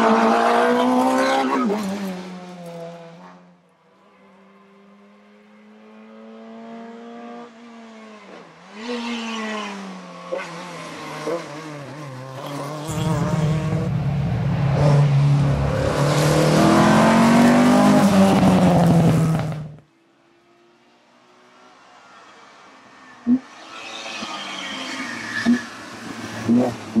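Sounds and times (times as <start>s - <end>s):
rally car engine at full throttle: 5.4s - 19.8s, 23.1s - 27.0s
rally car approaching: 10.5s - 19.8s.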